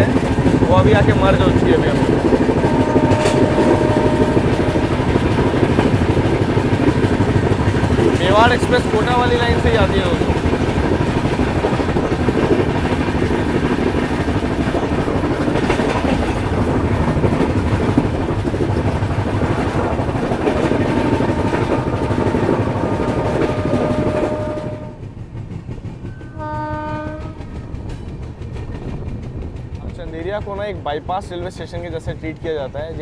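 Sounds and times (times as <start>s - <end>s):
train wheels rumbling on rails: 0.0s - 33.0s
wind: 0.0s - 33.0s
train horn: 2.5s - 5.7s, 20.5s - 25.1s, 26.2s - 27.6s.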